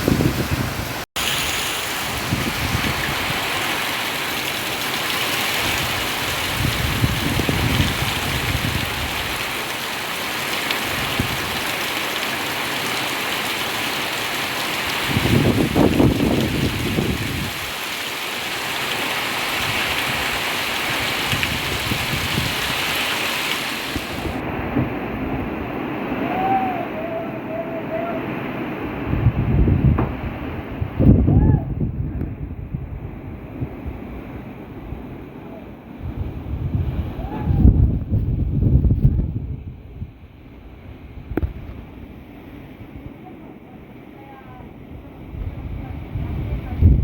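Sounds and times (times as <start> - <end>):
wind buffeting microphone: 0.0 - 3.7, 5.5 - 9.6, 10.8 - 11.7, 14.8 - 17.8, 19.4 - 23.1, 23.8 - 43.3, 44.5 - 47.0
heavy rain pouring: 0.0 - 31.3.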